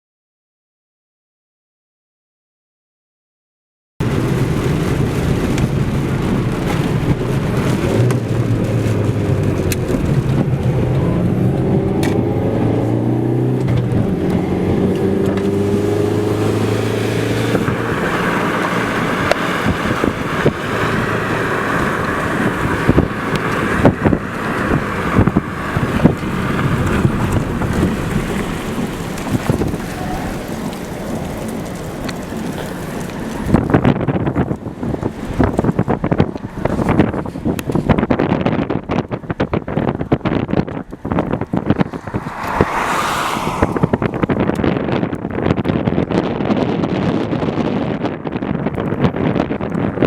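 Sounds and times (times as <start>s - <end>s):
vehicle engine running: 4.0s - 45.4s
rain hiss: 15.7s - 33.8s.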